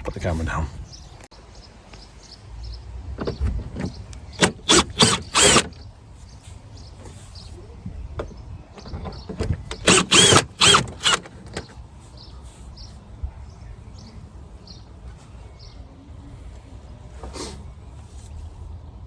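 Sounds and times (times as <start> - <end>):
cordless drill whirring: 4.4 - 5.7, 9.8 - 11.3.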